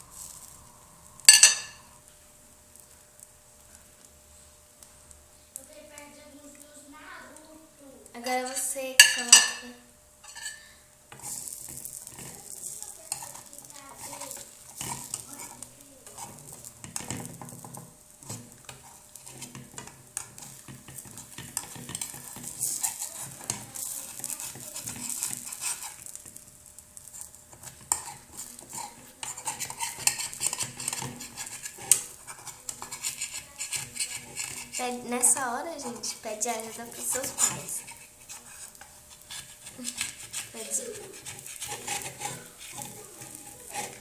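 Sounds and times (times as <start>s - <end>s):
utensil scraping against a pan: 0.0s - 2.0s, 8.2s - 44.0s
light sizzle: 0.0s - 44.0s.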